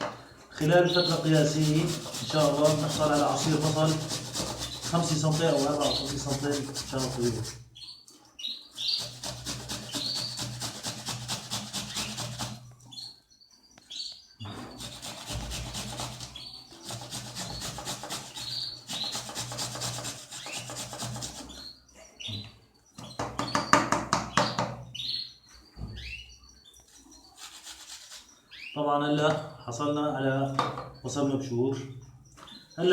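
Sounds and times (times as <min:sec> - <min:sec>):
bird chirps: 0:00.0 - 0:32.9
onion grated on metal grater: 0:00.6 - 0:07.6, 0:08.8 - 0:12.6, 0:14.6 - 0:21.7, 0:27.4 - 0:28.3.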